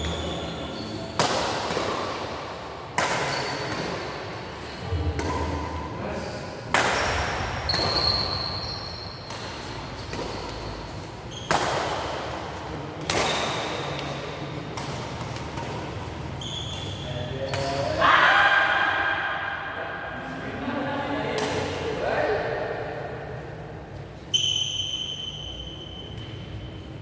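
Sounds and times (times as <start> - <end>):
shoe squeaks: 0.0 - 1.2, 3.3 - 3.8, 7.0 - 11.6, 16.2 - 17.9, 24.3 - 27.0
racket hitting shuttlecock: 1.2 - 4.4, 5.2 - 5.8, 6.7 - 16.2.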